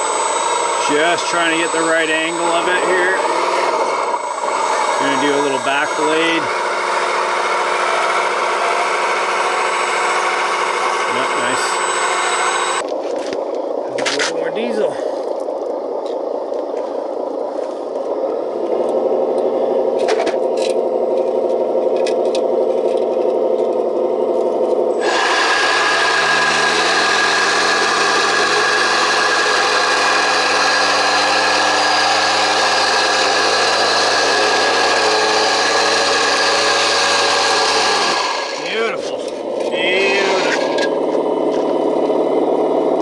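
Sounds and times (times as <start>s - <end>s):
harsh motor buzz: 0.0s - 12.8s, 24.7s - 43.0s
electric motor whirring: 0.0s - 12.9s, 23.4s - 43.0s.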